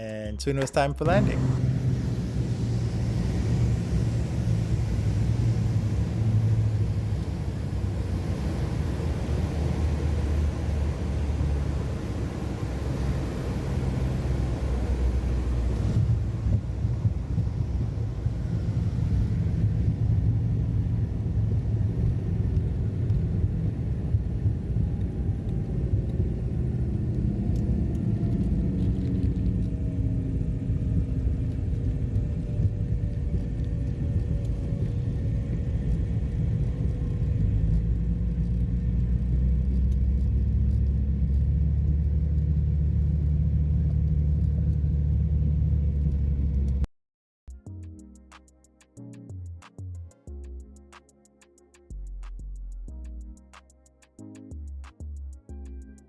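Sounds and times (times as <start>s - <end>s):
twin piston engines droning: 0.0s - 22.9s
aircraft cabin engine drone: 0.0s - 46.9s.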